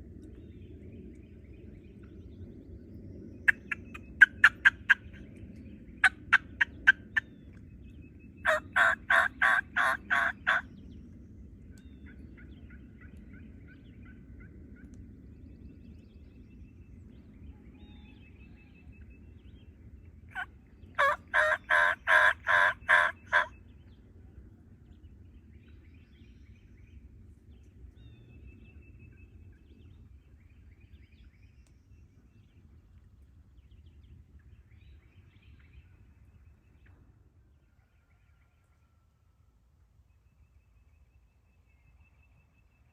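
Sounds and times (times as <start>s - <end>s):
wild turkey yelping: 8.5s - 10.6s, 20.4s - 23.5s
faint songbird chirps: 10.6s - 21.1s, 23.2s - 39.1s, 39.9s - 42.9s.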